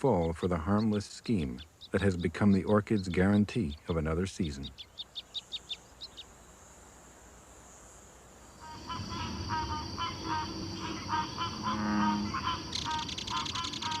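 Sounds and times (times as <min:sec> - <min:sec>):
high insect drone: 0:00.1 - 0:14.0
short honking calls: 0:08.6 - 0:14.0.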